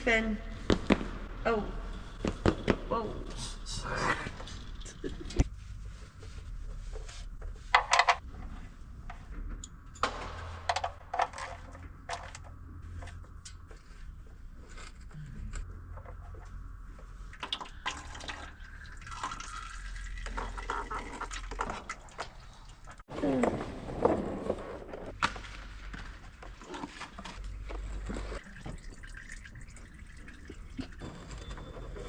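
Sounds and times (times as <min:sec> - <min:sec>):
tools and parts clanking: 0:07.7 - 0:16.5
motor oil pouring and splashing: 0:17.2 - 0:23.0, 0:27.6 - 0:31.1.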